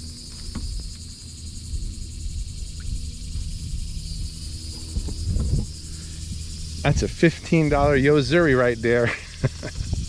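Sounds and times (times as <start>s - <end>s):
low rumble: 0.0s - 9.1s
insects droning: 0.0s - 10.0s.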